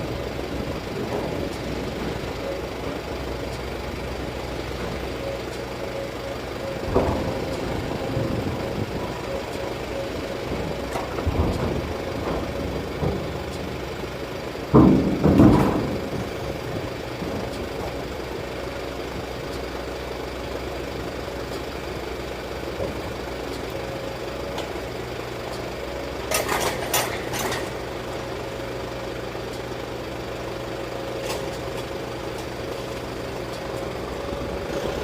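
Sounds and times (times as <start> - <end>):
engine idling low hum: 0.0 - 35.0
clatter of knocks: 0.4 - 5.7, 6.7 - 18.3.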